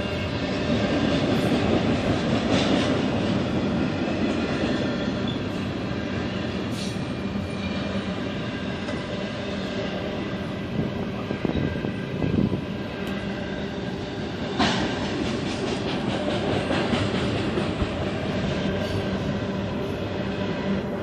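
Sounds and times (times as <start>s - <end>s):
train wheels clacking over rail joints: 0.4s - 5.7s, 13.8s - 19.9s.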